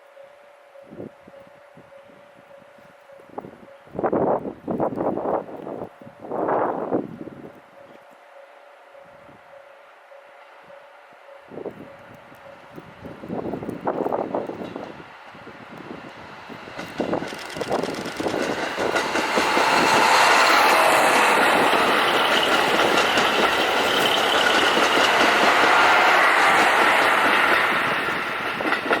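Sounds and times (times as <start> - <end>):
train clattering: 12.4 - 29.0
rush of train wheels: 13.0 - 29.0.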